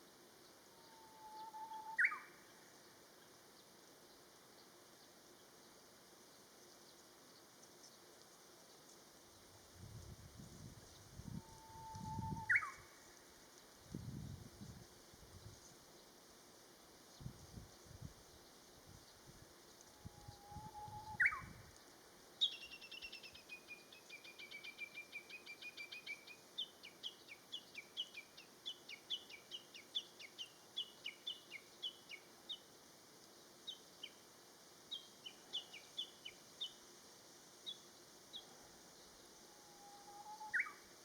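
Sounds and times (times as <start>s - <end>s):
bird singing whistle and flourish: 1.0s - 2.4s, 11.4s - 12.8s, 20.2s - 21.6s, 40.1s - 40.8s.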